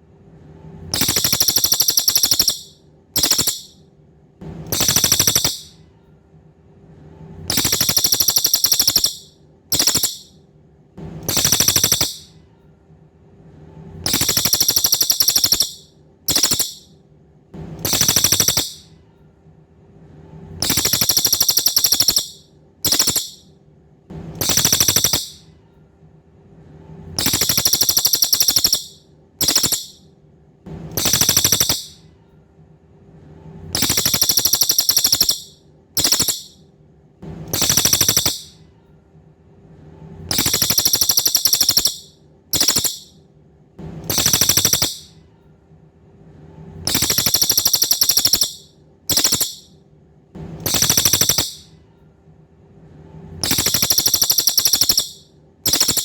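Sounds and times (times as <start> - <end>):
faint steady hum: 0.0 - 56.0
songbird trilling: 1.0 - 3.7, 4.7 - 5.7, 7.5 - 10.3, 11.3 - 12.3, 14.1 - 16.9, 17.8 - 18.8, 20.6 - 23.4, 24.4 - 25.4, 27.2 - 30.0, 31.0 - 32.0, 33.8 - 36.6, 37.6 - 38.5, 40.3 - 43.1, 44.1 - 45.1, 46.9 - 49.7, 50.6 - 51.6, 53.4 - 56.0.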